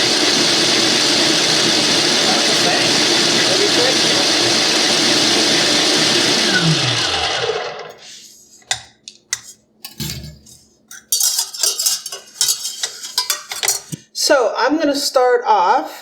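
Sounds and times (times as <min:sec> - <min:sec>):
stand mixer motor whining down: 0:00.0 - 0:07.9.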